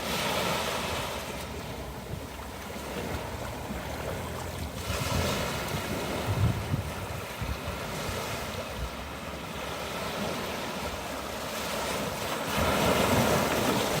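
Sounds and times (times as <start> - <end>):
waves washing on shore: 0.0 - 14.0
wind buffeting microphone: 1.8 - 9.3.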